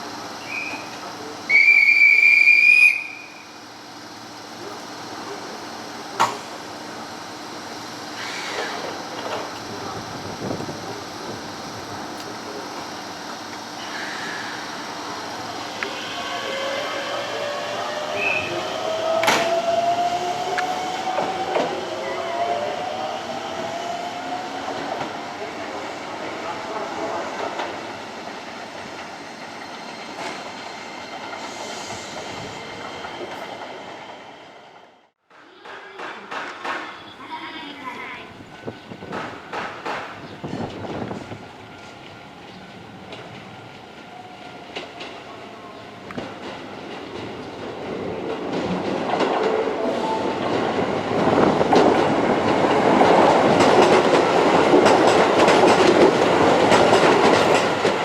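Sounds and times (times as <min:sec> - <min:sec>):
murmur of station noise: 0:00.0 - 0:31.3, 0:32.2 - 0:58.0
train wheels rumbling on rail: 0:00.0 - 0:58.0.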